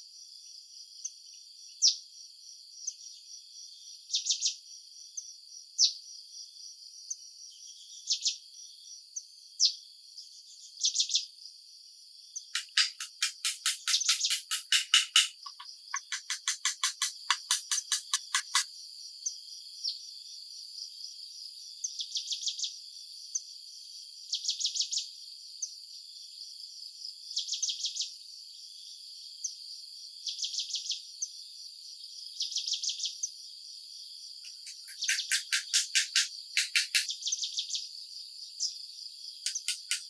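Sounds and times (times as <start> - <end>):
insects chirping: 12.6 - 18.6, 34.5 - 37.1, 39.5 - 40.0.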